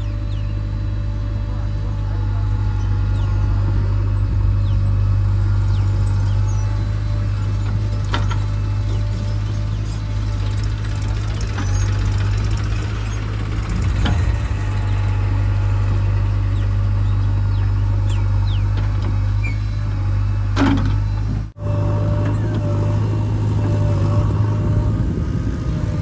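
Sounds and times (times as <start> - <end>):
diesel engine droning: 0.0 - 26.0
metal clank: 8.0 - 16.8.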